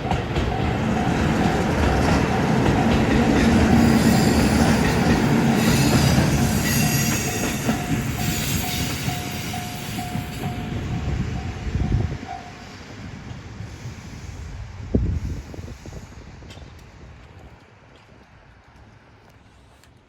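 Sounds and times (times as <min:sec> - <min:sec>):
crossing warning bell ringing: 0:00.0 - 0:12.9
diesel train passing: 0:00.0 - 0:19.8
train wheels squealing: 0:00.6 - 0:11.7.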